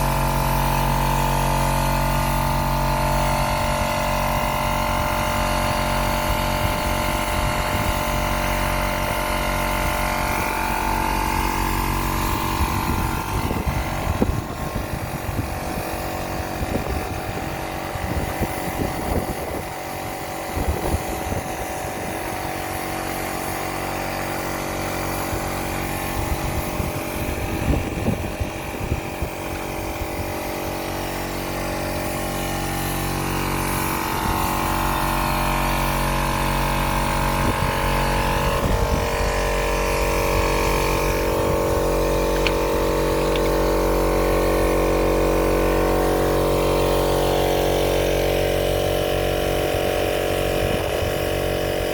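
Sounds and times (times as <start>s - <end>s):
motor running: 0.0s - 51.9s.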